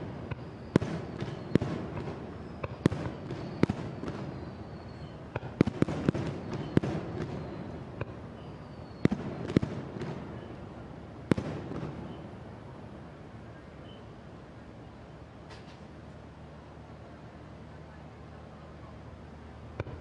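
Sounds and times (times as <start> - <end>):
fireworks bursting with bangs: 0.0 - 12.6
fireworks crackle: 0.0 - 12.6.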